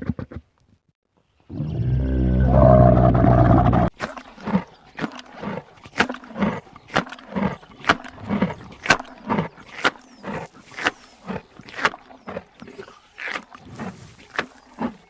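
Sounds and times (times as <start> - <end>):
wild animal low call: 1.5 - 15.0
short repeated animal calls: 3.9 - 15.0.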